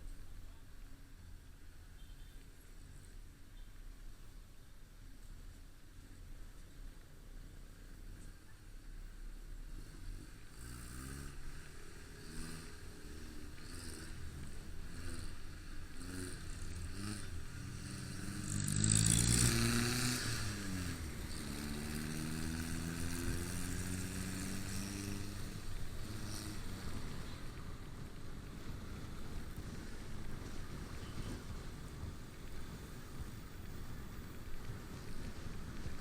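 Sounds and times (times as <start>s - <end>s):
motorcycle engine revving: 9.6s - 36.0s.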